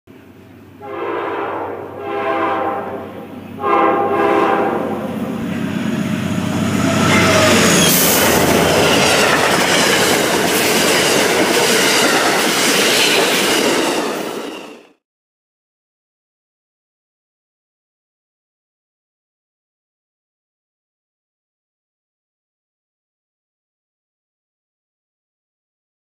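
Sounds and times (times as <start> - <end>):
train rushing past: 0.2 - 15.0
train horn blasts: 0.8 - 9.5
wheels clattering over rail joints: 6.2 - 14.8.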